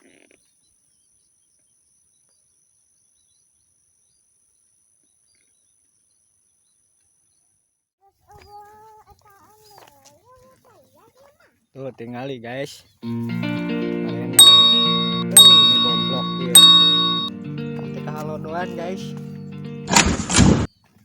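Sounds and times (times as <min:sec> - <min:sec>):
melodic music: 0:13.1 - 0:20.0.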